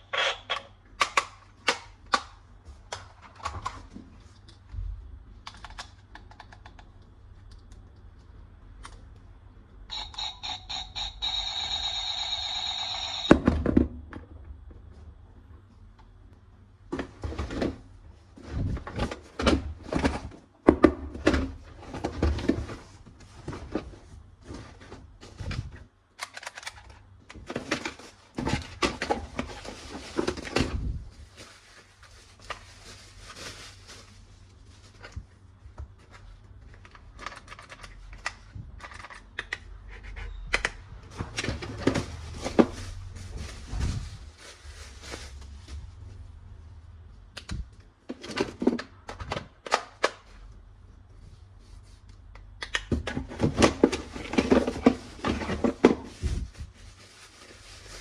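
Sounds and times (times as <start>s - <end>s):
plastic toy parts clattering: 26.2s - 30.6s.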